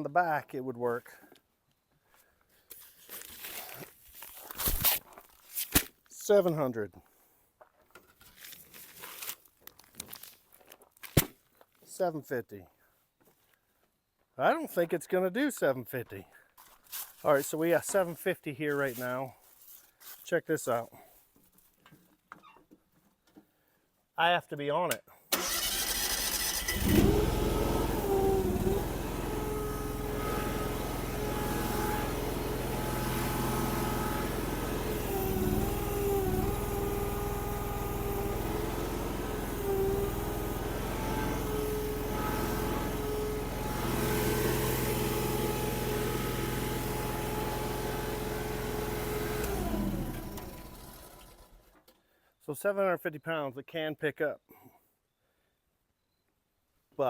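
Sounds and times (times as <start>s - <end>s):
engine revving under load: 25.4s - 51.6s.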